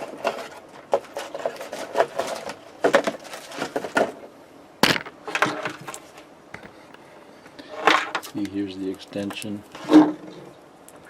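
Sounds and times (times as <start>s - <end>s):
cables and plastic connectors clicking: 6.6s - 7.0s.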